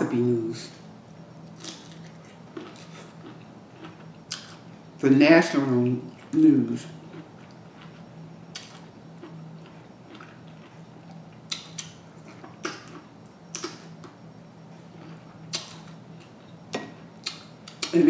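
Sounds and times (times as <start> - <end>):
faint steady hum: 0.0 - 18.0
person chewing with wet smacks: 1.4 - 4.6, 7.0 - 18.0.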